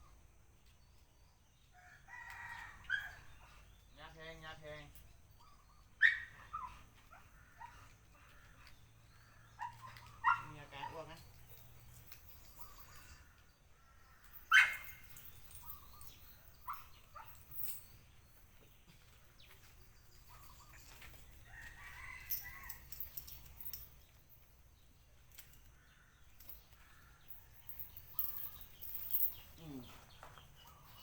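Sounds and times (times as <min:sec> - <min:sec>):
rooster crowing: 0:21.5 - 0:23.0.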